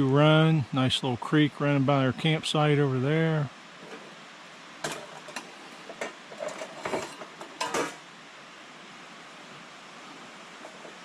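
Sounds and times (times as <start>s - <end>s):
creek rushing: 0.0s - 11.0s
dishes and utensils clattering: 4.8s - 8.0s.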